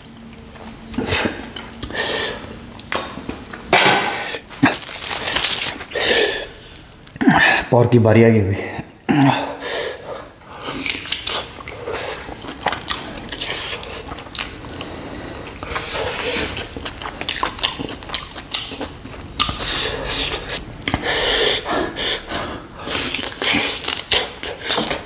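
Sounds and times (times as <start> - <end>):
person biting and chewing: 10.5 - 21.2, 21.8 - 25.0
wet mouth smacks and clicks: 17.3 - 19.7.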